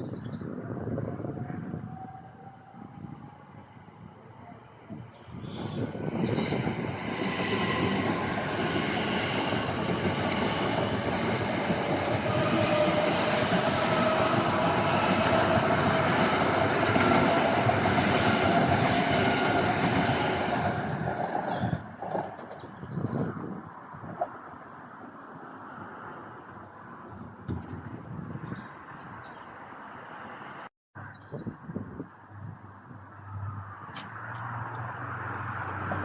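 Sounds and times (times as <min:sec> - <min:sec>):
train running past on rails: 0:01.2 - 0:27.8, 0:34.0 - 0:36.0.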